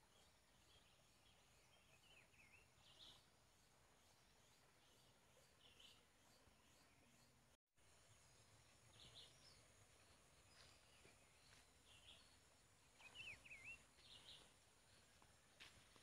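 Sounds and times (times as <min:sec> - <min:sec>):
whistled bird notes: 0:13.0 - 0:14.4.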